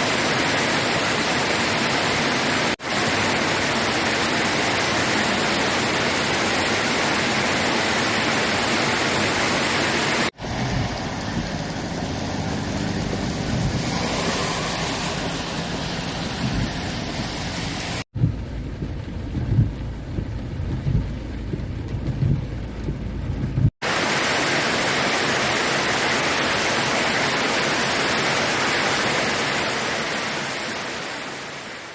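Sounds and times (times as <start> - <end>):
heavy rain hissing: 0.0 - 18.1, 23.8 - 31.9
low rumbling: 10.4 - 23.8.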